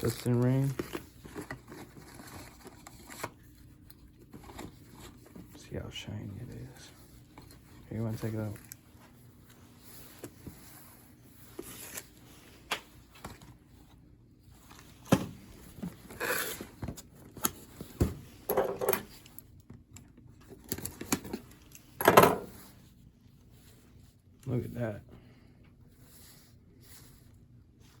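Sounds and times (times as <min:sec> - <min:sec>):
packaging rustling and crinkling: 0:00.0 - 0:13.9.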